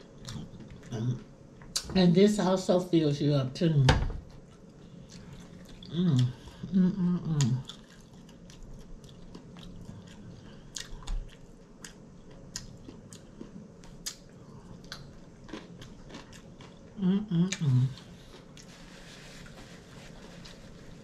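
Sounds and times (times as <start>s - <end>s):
person crunching chips: 14.9s - 16.9s.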